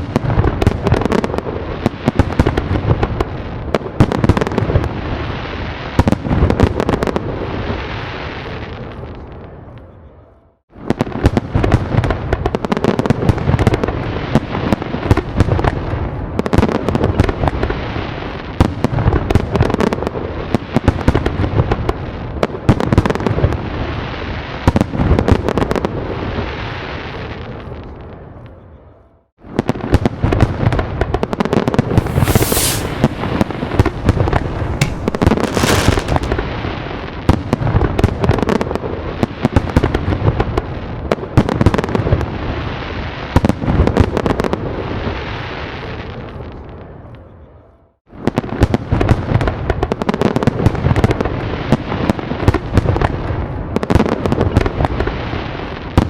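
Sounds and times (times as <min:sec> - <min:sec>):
fireworks bangs and crackle: 0:00.0 - 0:09.8, 0:10.7 - 0:28.4, 0:29.4 - 0:47.1, 0:48.1 - 0:56.0
firework whistles: 0:31.7 - 0:36.6.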